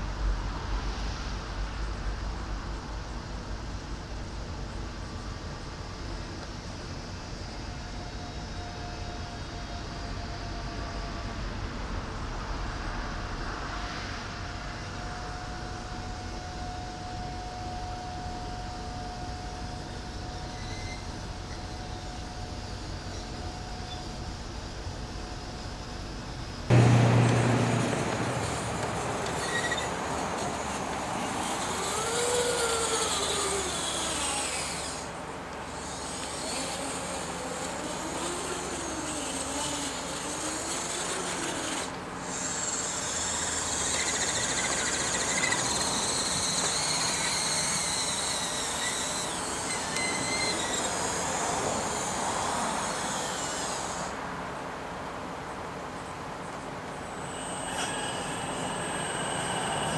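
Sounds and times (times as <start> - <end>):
faint motor whines: 0.0 - 59.9
electric motors whirring: 26.7 - 54.2, 57.0 - 59.9.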